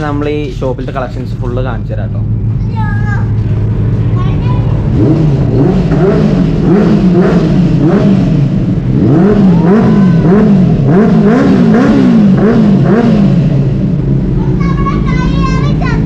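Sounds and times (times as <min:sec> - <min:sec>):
motorcycle engine revving: 0:03.3 - 0:14.6.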